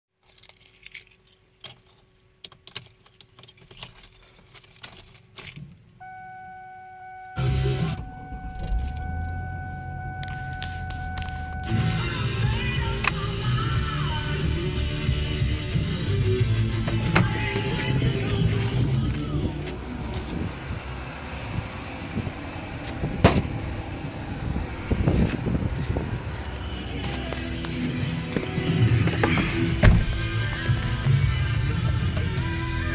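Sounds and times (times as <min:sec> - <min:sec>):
car keys jangling: 0:00.2 - 0:07.3, 0:07.9 - 0:20.4
steady electronic tone: 0:06.0 - 0:17.6.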